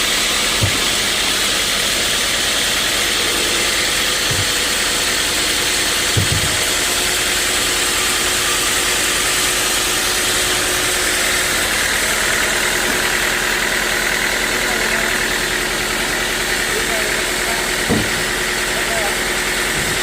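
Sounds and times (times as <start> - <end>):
sawmill machinery running: 0.0 - 20.0
dull low thumps: 0.2 - 2.1, 2.8 - 7.1.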